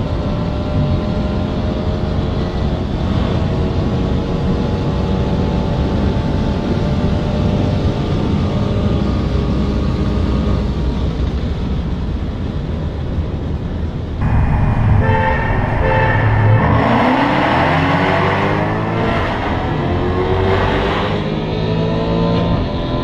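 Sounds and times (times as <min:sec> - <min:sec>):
road noise: 0:10.7 - 0:23.0.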